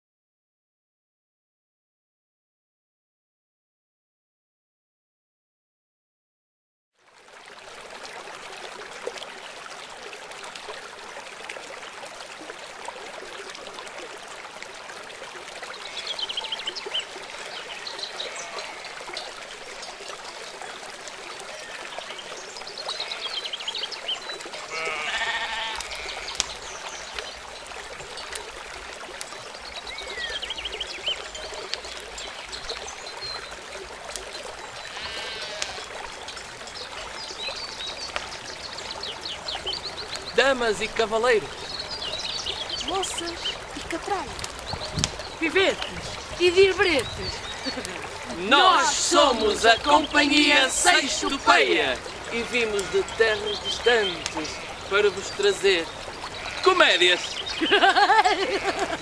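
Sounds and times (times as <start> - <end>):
running water: 7.0 - 59.0
animal bleating: 15.8 - 16.5, 17.8 - 19.1, 21.4 - 21.9, 22.8 - 23.6, 24.6 - 26.6, 34.8 - 35.9, 47.0 - 49.6, 50.4 - 55.2, 56.3 - 57.1, 58.2 - 59.0.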